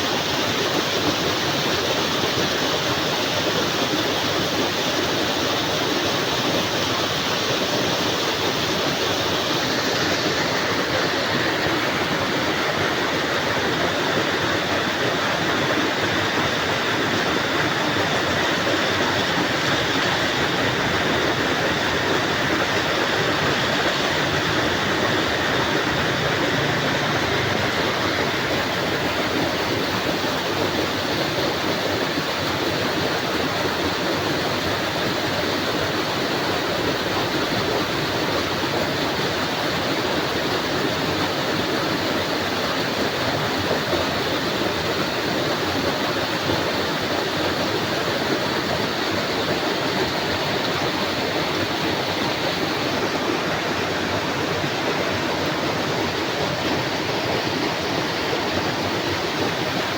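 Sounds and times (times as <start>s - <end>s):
heavy rain falling: 14.6s - 31.6s.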